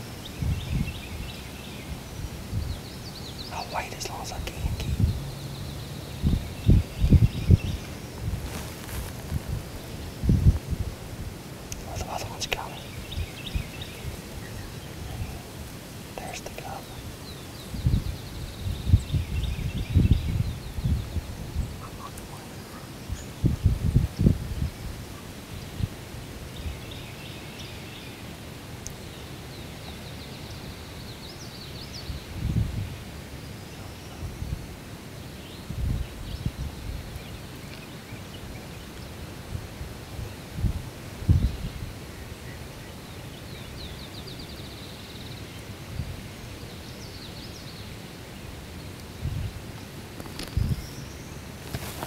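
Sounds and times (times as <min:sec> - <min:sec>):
songbirds chirping: 0:00.0 - 0:52.0
steady outdoor hiss: 0:00.0 - 0:52.0
steady low rumble: 0:02.6 - 0:21.8.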